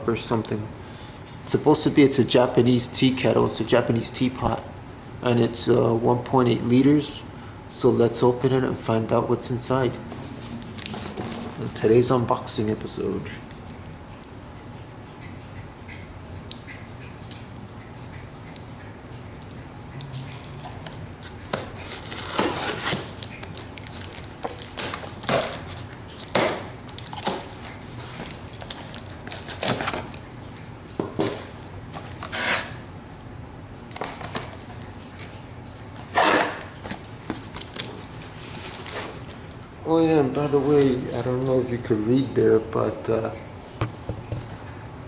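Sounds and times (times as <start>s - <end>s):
cardboard packaging rustling and tearing: 21.3s - 30.2s.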